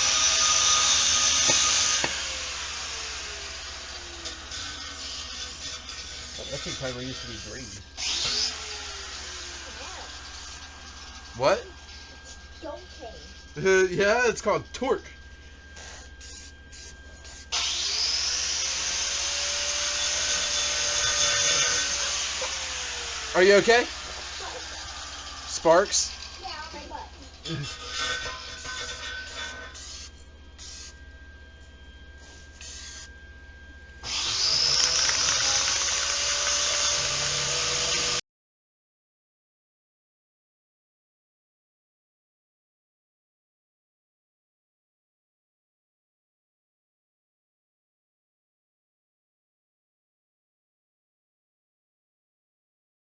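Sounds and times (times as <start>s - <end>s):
power tool motor whine: 0.0s - 33.2s, 34.0s - 38.2s
angle grinder grinding metal: 0.0s - 33.3s, 34.0s - 38.2s.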